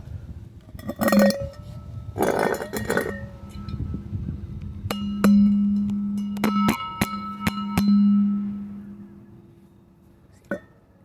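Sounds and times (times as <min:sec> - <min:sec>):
glass or metal clinking and ringing: 0:00.8 - 0:03.8, 0:04.9 - 0:08.9.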